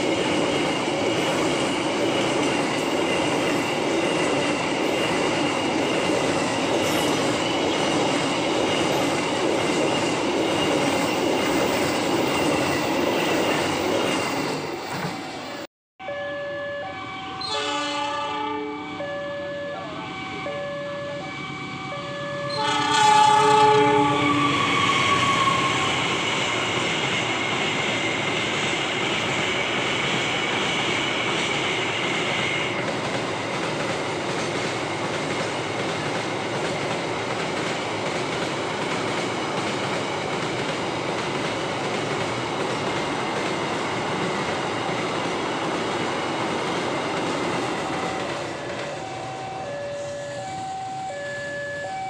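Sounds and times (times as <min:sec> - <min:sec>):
locomotive horn: 0:16.0 - 0:26.0.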